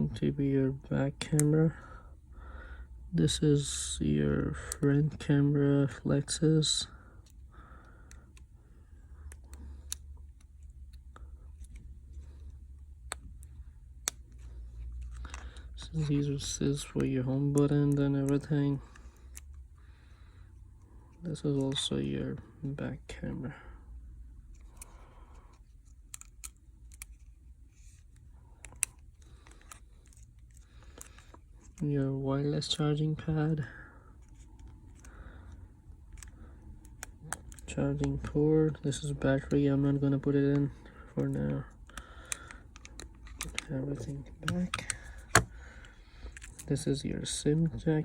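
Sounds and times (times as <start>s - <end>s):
low steady hum: 0.0s - 48.0s
small phone parts clicking: 9.1s - 19.6s, 24.4s - 31.8s, 34.2s - 46.7s.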